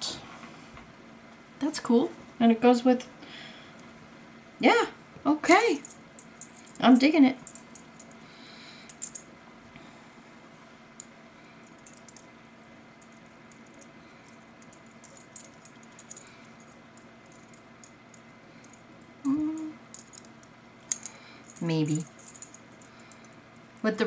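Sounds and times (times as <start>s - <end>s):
low steady hum: 0.0s - 24.0s
jewelry clicking: 5.8s - 8.2s, 8.9s - 9.3s, 11.7s - 12.3s, 13.0s - 23.4s.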